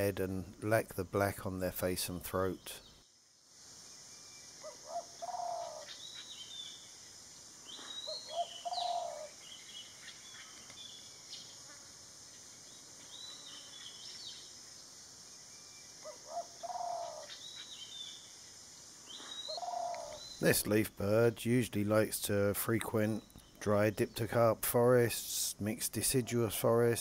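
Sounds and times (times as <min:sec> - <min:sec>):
steady high hiss: 0:00.0 - 0:27.0
low bird call: 0:04.6 - 0:06.8, 0:07.7 - 0:11.5, 0:16.0 - 0:18.2, 0:19.1 - 0:20.5
high bird chirps: 0:07.7 - 0:11.5.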